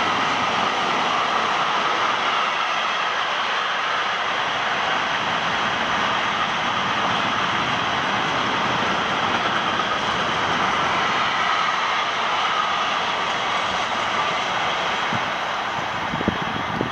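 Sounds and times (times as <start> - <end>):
train passing: 0.0 - 16.9.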